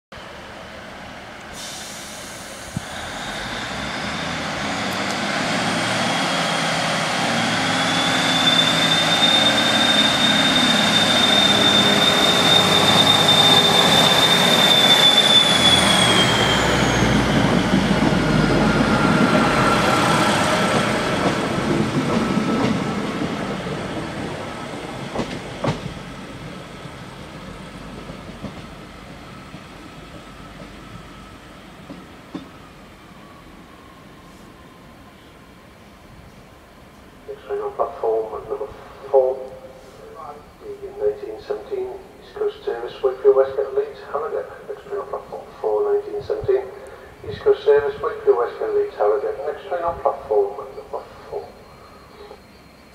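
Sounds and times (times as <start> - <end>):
diesel train engines: 0.2 - 52.9
wheels squealing: 2.9 - 21.0, 50.6 - 52.9.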